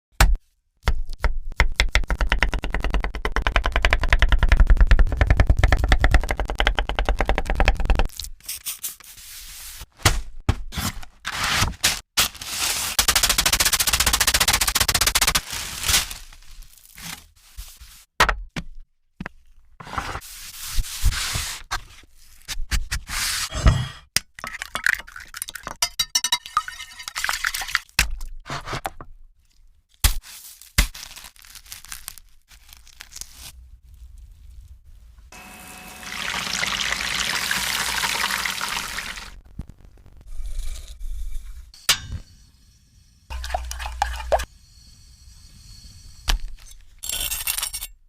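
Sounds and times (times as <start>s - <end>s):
chicken frying crackling: 35.4s - 40.4s.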